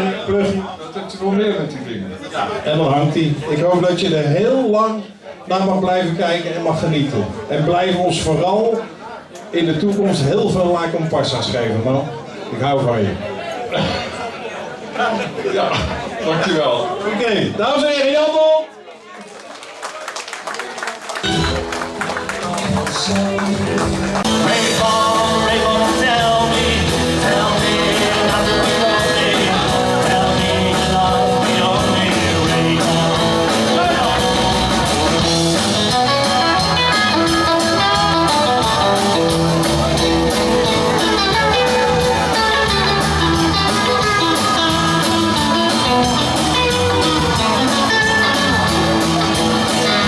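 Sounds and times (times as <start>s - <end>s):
electric guitar: 21.2s - 50.0s
live rock band playing: 21.2s - 50.0s.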